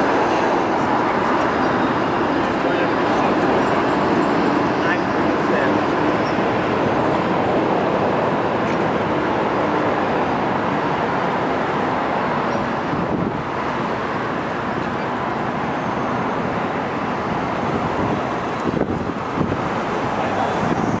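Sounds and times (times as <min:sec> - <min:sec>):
city traffic noise: 0:00.0 - 0:21.0
passenger train rumbling: 0:00.0 - 0:21.0.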